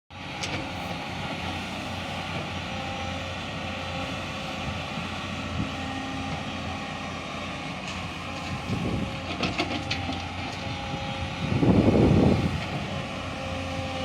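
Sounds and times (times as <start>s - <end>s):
excavator diesel engine humming: 0.1s - 14.0s.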